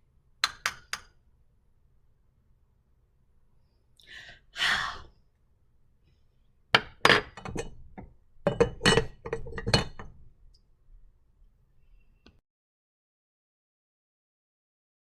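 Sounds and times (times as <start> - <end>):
hard clinks and knocks: 6.8 - 10.3.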